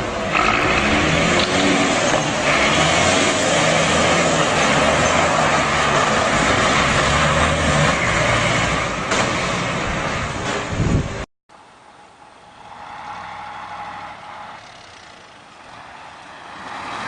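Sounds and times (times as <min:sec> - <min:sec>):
vehicle engine running: 0:00.0 - 0:08.8.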